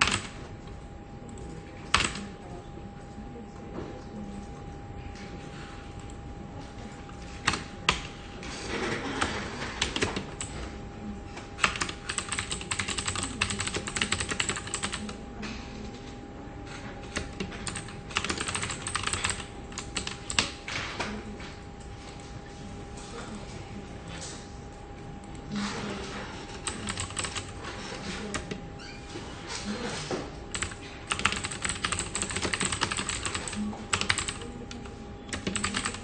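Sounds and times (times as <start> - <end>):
computer keyboard typing: 0.0 - 2.4, 6.8 - 10.7, 11.4 - 15.2, 16.7 - 21.5, 25.2 - 28.6, 29.8 - 36.0.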